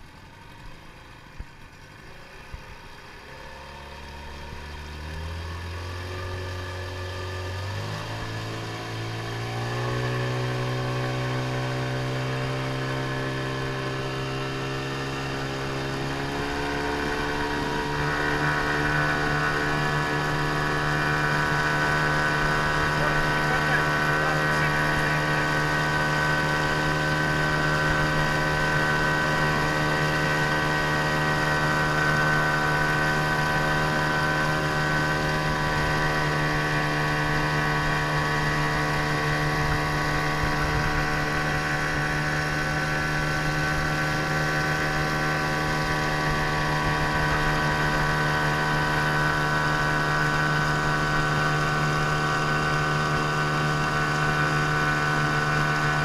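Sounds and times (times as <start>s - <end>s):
outboard motor running: 0.0s - 56.0s.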